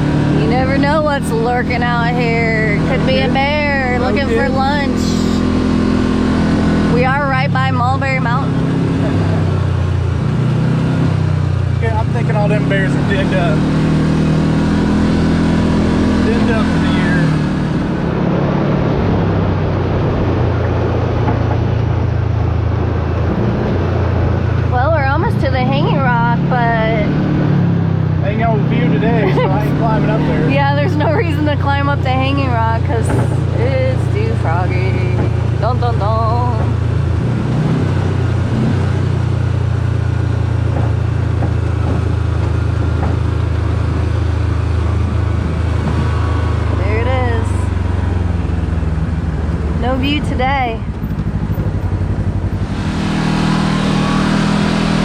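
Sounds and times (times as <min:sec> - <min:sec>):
vehicle engine drone: 0:00.0 - 0:55.0
wind: 0:00.0 - 0:55.0
vehicle knocks and rattles: 0:40.4 - 0:46.5.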